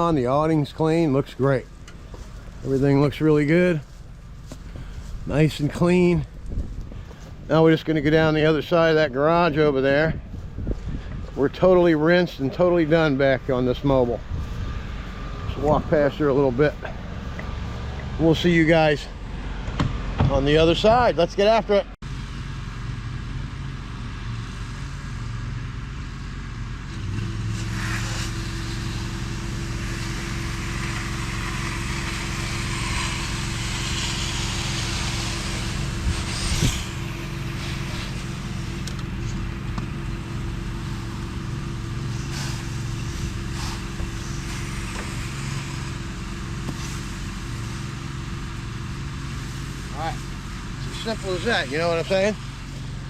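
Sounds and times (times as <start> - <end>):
steady hum: 0.0 - 22.0, 27.5 - 53.0
pressure washer spraying water: 27.5 - 52.8.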